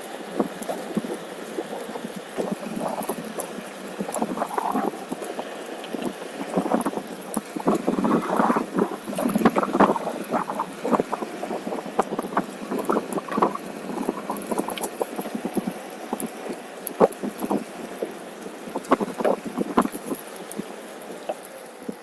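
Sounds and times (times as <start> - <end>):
electric board wheel rumble: 0.0 - 22.0
wind buffeting microphone: 0.2 - 21.2.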